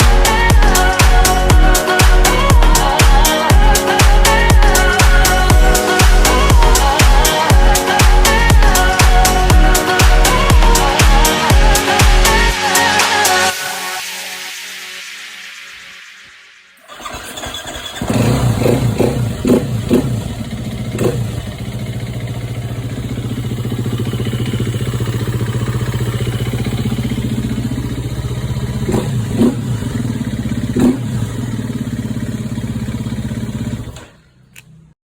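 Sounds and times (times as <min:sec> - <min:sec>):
dirt bike engine idling: 0:16.9 - 0:34.9.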